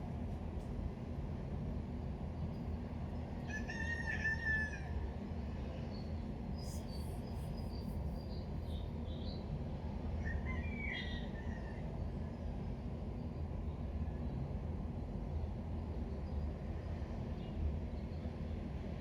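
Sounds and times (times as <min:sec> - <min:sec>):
rooster crowing: 0:03.5 - 0:04.9.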